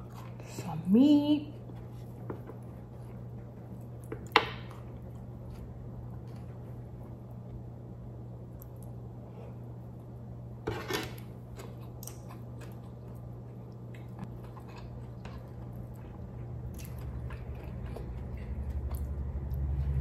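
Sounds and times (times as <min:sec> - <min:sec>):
person chewing: 0:11.4 - 0:19.8
low hum: 0:12.4 - 0:20.0.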